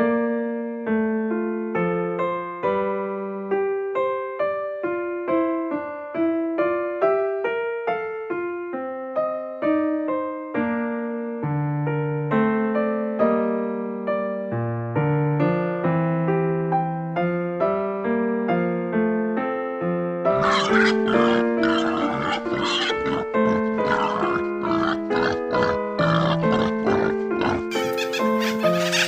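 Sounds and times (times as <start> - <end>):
piano-like keyboard melody: 0.0 - 29.0.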